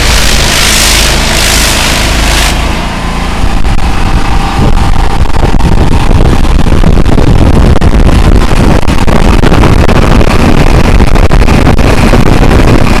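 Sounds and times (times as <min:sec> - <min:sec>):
pressure washer running: 0:00.0 - 0:13.0.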